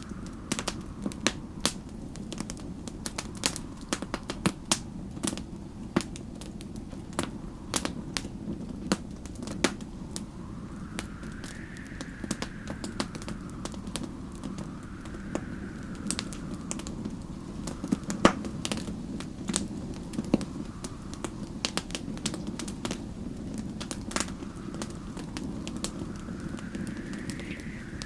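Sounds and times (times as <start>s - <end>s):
storm wind: 0.0s - 28.0s
wood fire crackling and popping: 0.0s - 28.0s.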